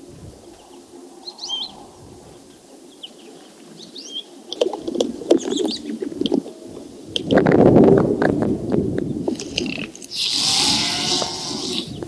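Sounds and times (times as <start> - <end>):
faint background hush: 0.0 - 12.0
small birds chirping: 0.0 - 12.0
sharp clicks and rustling: 7.1 - 10.3.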